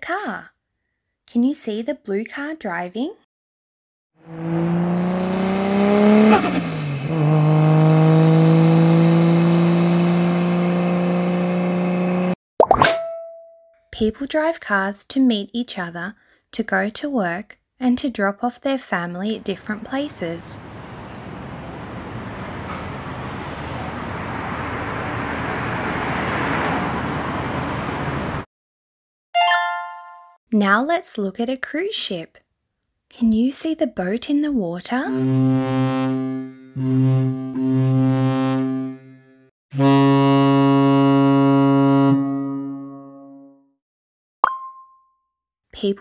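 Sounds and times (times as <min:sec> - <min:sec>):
car engine accelerating: 0:04.2 - 0:12.4, 0:19.4 - 0:28.4.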